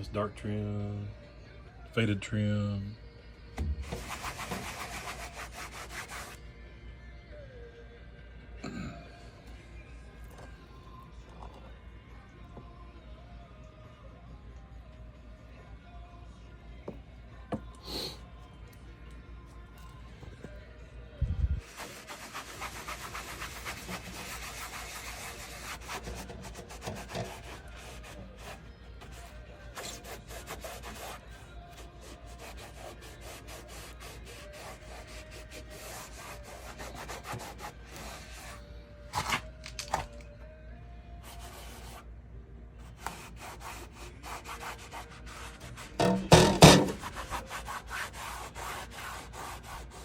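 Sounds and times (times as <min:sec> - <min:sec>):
hand wiping plastic trim: 0:21.6 - 0:38.6, 0:43.0 - 0:50.0.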